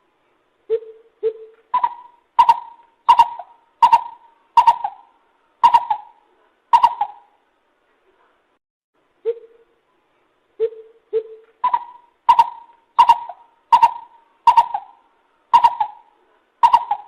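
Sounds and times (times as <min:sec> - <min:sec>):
bird hooting calls: 0:00.7 - 0:07.4, 0:10.6 - 0:17.0.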